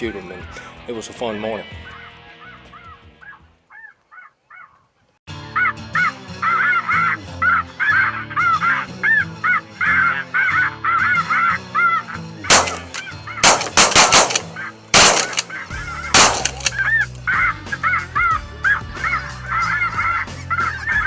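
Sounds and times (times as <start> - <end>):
shotgun shots: 12.5 - 16.9.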